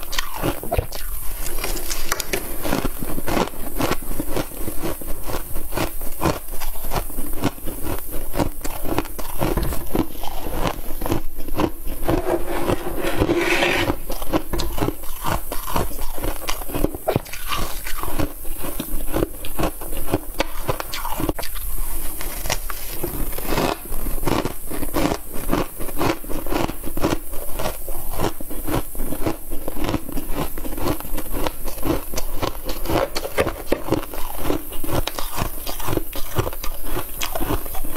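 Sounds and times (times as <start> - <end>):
squeaky scraping: 12.0 - 14.1.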